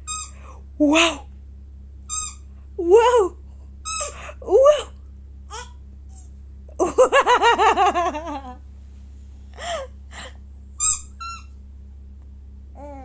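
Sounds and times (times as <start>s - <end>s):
person giggling: 6.7s - 8.6s, 9.6s - 10.4s.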